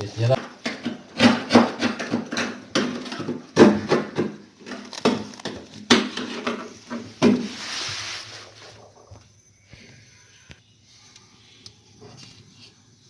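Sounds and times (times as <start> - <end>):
knocks and clatter of parts: 0.2 - 7.5
hissing scrape: 7.4 - 9.0.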